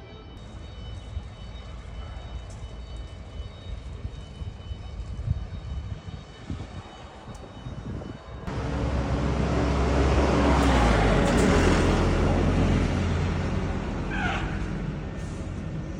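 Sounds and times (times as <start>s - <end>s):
truck diesel engine running: 8.5s - 15.9s.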